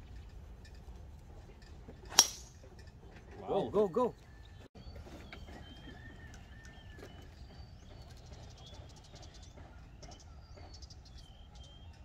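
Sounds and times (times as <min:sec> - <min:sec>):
birds whistling and chirping: 0:03.5 - 0:12.0.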